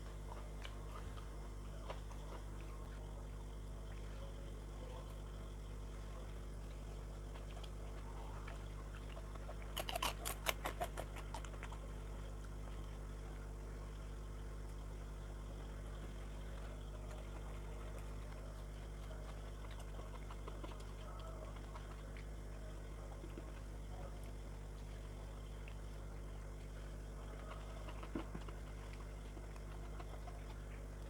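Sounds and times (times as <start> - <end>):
faint chewing: 0.0 - 31.0
steady low hum: 0.0 - 31.0
sharp crunches: 9.7 - 11.8.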